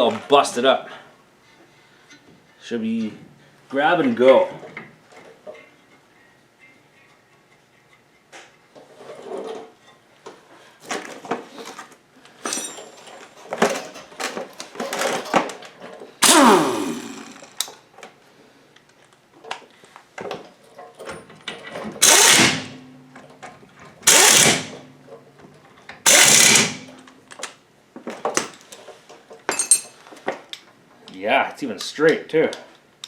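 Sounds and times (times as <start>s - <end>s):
metal clinks of hand tools: 12.4s - 15.4s, 29.5s - 30.0s
loud sound falling in pitch: 16.2s - 17.5s
short loud bursts of noise: 16.2s - 17.6s.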